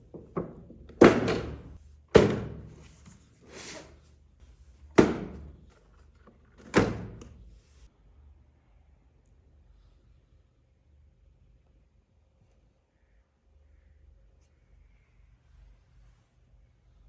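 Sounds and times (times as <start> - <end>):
sharp thunks: 5.0 - 5.6.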